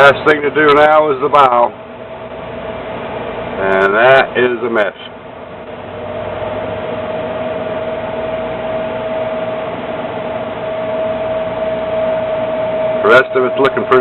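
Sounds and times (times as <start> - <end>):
mechanical hum and hiss: 0.0 - 14.0.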